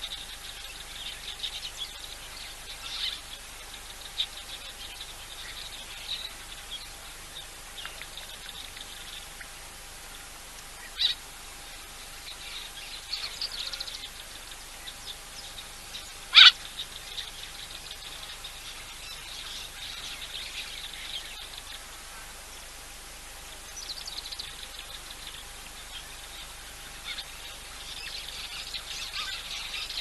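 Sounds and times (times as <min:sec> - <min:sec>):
birds chirping and trilling: 0:00.0 - 0:30.0
faint steady hum: 0:00.0 - 0:30.0
loud sharp bird call: 0:16.3 - 0:16.7.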